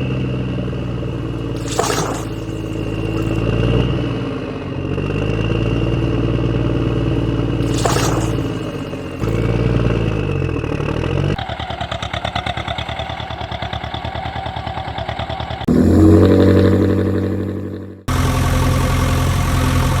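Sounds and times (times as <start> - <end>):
steady engine hum: 0.0 - 20.0
loud engine note: 15.7 - 20.0.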